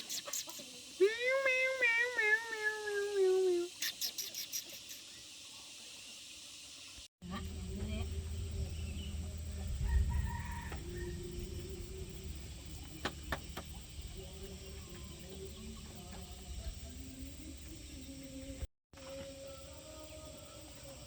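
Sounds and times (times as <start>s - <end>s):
steady low rumble: 7.2s - 18.1s
rooster crowing: 8.9s - 12.4s.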